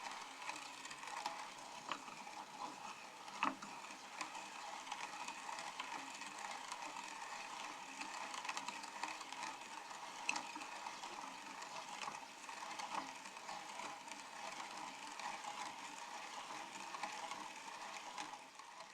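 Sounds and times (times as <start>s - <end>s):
meat grinder churning: 0.0s - 18.9s.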